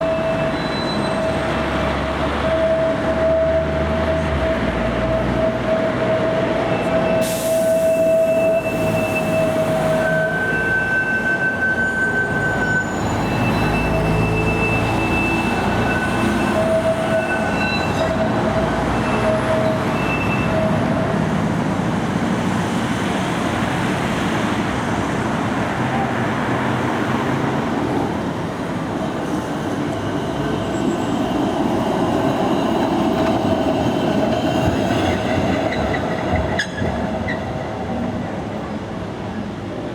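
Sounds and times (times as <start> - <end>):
high-pitched wheel squeal: 0.0 - 21.2, 29.6 - 37.4
tram wheels rumbling on rails: 0.0 - 39.9.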